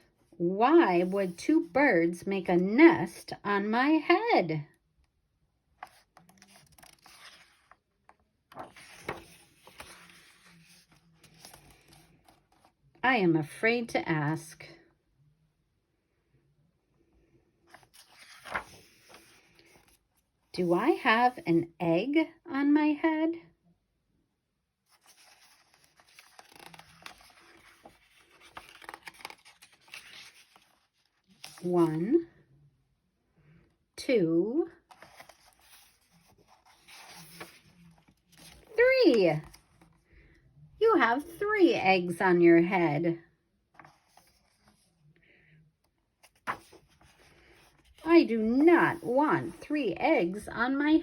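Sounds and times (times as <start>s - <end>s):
paper page rustling: 5.8s - 12.7s, 17.7s - 20.2s, 24.9s - 31.7s, 34.8s - 40.0s, 43.8s - 45.0s, 46.2s - 49.6s.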